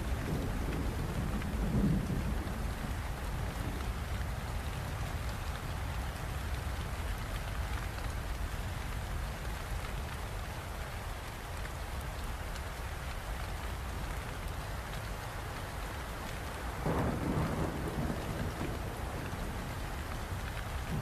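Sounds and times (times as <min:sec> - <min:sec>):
steady rain pattering: 0:00.0 - 0:21.0.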